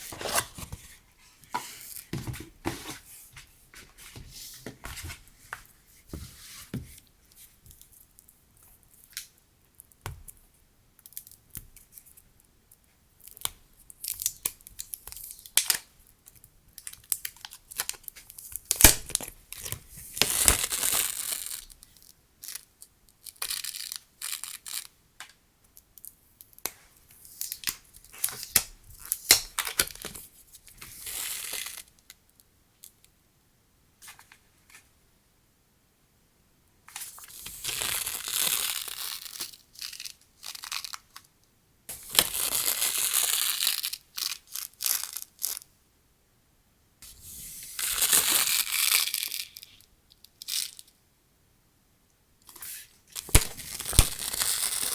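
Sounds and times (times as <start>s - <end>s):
packaging crinkling: 53.2s - 54.9s
packaging tearing: 53.2s - 54.9s.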